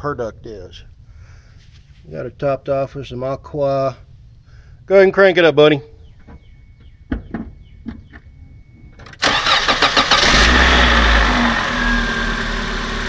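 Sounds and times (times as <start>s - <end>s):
faint steady tone: 3.9s - 9.2s
car engine starting and idling: 7.6s - 13.0s.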